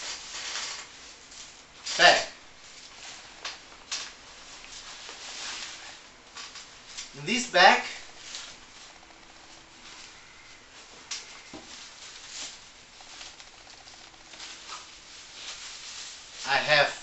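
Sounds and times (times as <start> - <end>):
fabric bag rustling: 8.0 - 16.4.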